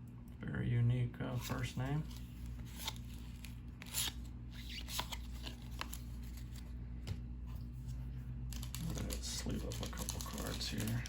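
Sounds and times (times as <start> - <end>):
cards swishing and ticking: 8.5 - 11.0.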